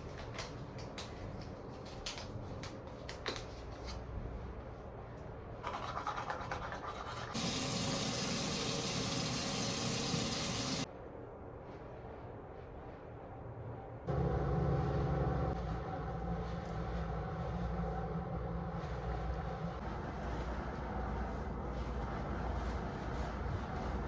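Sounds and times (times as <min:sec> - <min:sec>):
running water: 0:07.1 - 0:10.9.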